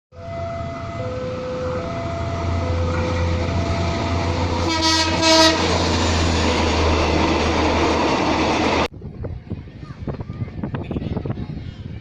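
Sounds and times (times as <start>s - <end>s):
engine humming: 0.2s - 8.9s.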